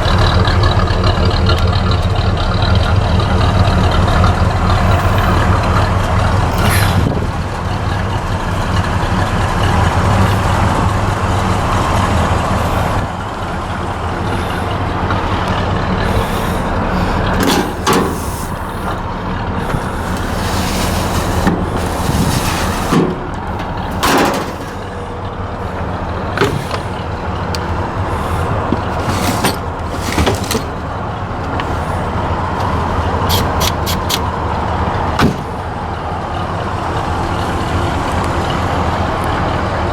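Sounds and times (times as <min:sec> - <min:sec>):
truck engine droning: 0:00.0 - 0:39.9
sharp knocks and rattles: 0:15.5 - 0:25.1, 0:26.3 - 0:35.7.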